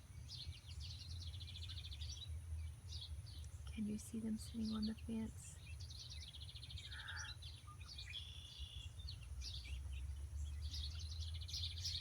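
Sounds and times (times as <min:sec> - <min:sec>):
songbirds chirping and twittering: 0:00.0 - 0:12.0.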